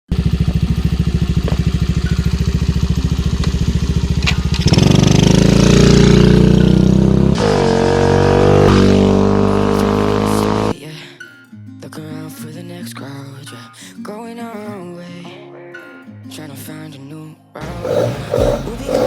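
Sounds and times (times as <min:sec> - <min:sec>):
small engine idling: 0:00.1 - 0:10.7.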